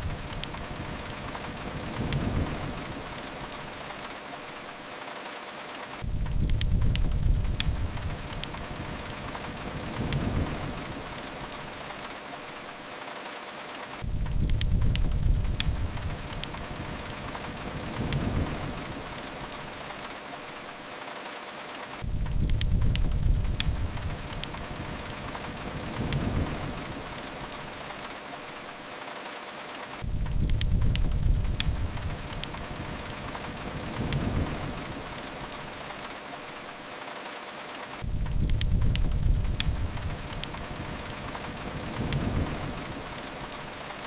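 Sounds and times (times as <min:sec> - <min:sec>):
rain hiss: 0:00.0 - 0:44.0
wood fire crackling: 0:00.0 - 0:44.0
low rumble: 0:38.0 - 0:40.6.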